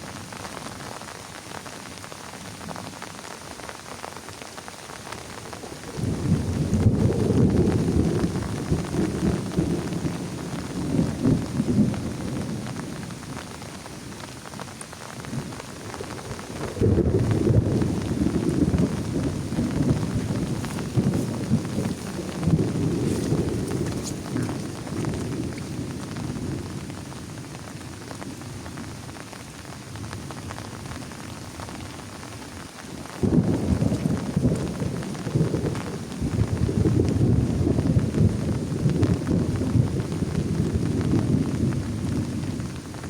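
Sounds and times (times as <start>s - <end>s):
heavy rain falling: 0.0s - 43.0s
low rumble of thunder: 5.4s - 14.4s, 15.2s - 29.2s, 32.9s - 43.0s.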